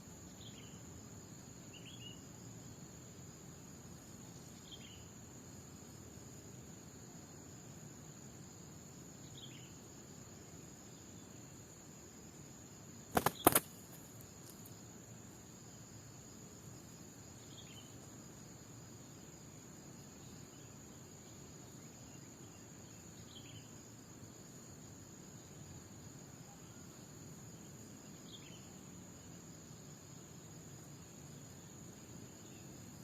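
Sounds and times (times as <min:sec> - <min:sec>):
insects droning: 0:00.0 - 0:33.0
sharp clicks: 0:13.1 - 0:13.7.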